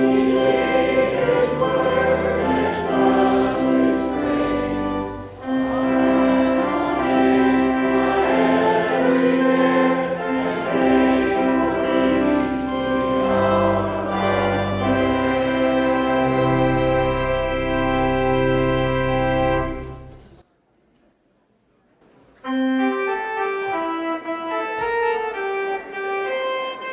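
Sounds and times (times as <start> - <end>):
choir singing held chords: 0.0 - 20.4.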